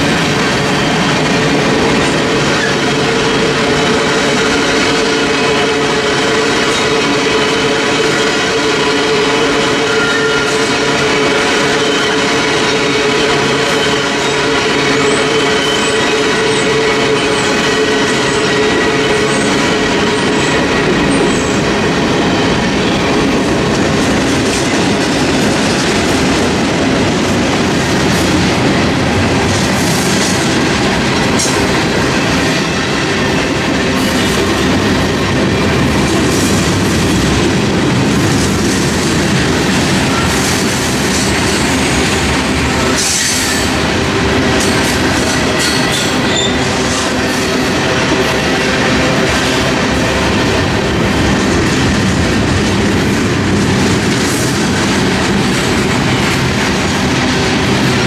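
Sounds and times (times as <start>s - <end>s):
freight train wheels rumbling on rail: 0.0s - 58.0s
high wheel squeal: 2.4s - 21.6s, 44.6s - 47.4s.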